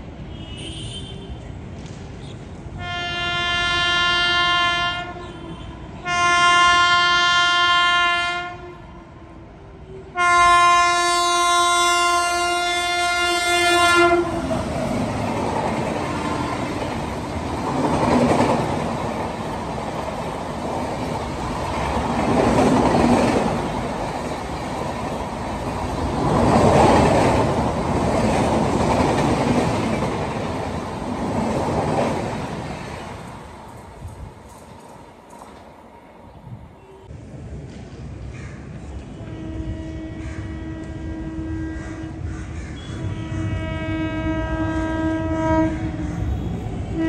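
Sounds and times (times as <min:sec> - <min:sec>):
train horn blast: 0:02.8 - 0:09.1, 0:09.8 - 0:14.6, 0:15.8 - 0:17.1, 0:39.1 - 0:47.0
train wheels clattering over rails: 0:14.4 - 0:35.8.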